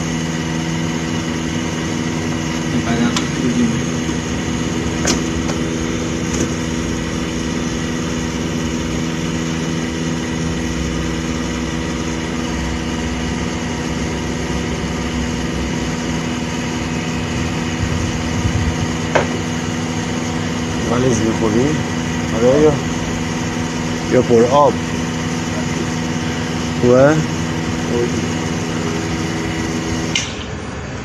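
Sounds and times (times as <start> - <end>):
electric machine hum: 0.0 - 31.0
sharp click: 30.1 - 30.5.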